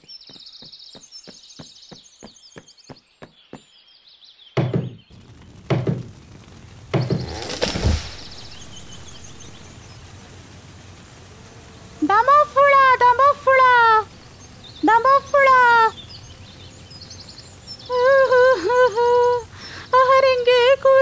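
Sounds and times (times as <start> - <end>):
quick light footsteps: 0.0 - 3.7
birds chirping: 0.0 - 21.0
tree falling crash: 5.0 - 12.7.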